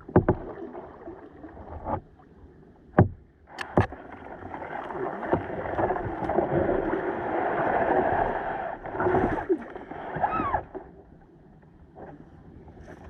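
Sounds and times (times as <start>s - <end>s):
paddle strokes splashing water: 0.0s - 10.9s
steady water wash: 2.9s - 11.0s.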